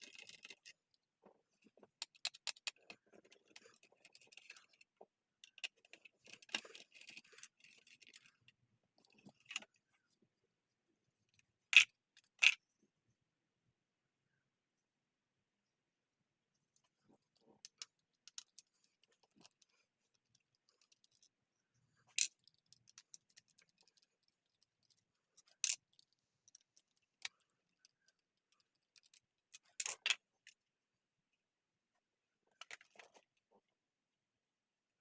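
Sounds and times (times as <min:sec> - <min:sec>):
small parts and tools clinking: 0:00.0 - 0:10.2, 0:16.7 - 0:30.6.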